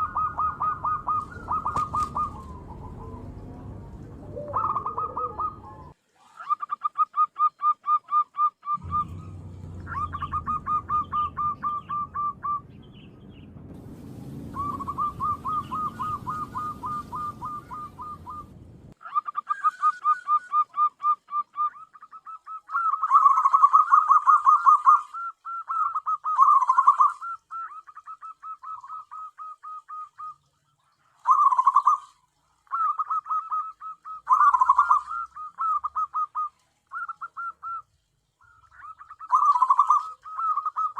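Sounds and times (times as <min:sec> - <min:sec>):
low rumble: 0:00.0 - 0:05.9, 0:08.8 - 0:19.0
doves calling: 0:00.0 - 0:40.9.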